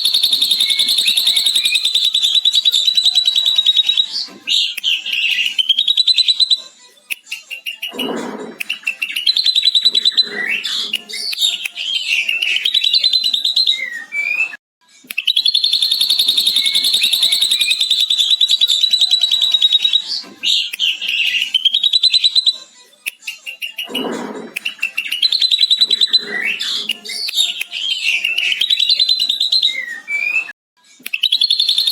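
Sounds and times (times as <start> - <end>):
bird chirps and warbles: 0.0 - 6.6, 7.6 - 14.5, 15.2 - 22.6, 23.5 - 30.5, 31.2 - 31.9
bird rapid chattering: 0.0 - 6.6, 15.2 - 22.5.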